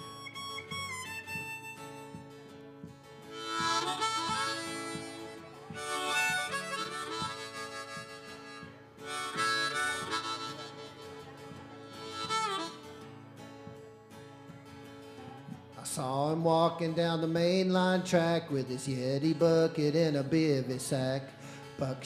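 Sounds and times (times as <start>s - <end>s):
harmonica playing: 0.0s - 2.5s, 3.2s - 13.3s
strummed acoustic guitars: 0.0s - 22.0s.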